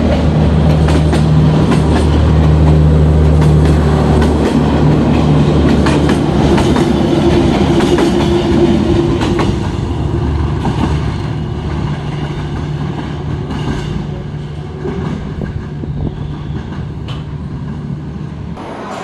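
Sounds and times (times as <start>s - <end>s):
rail joint clicks: 0.0s - 19.0s
train running on rails: 0.0s - 19.0s.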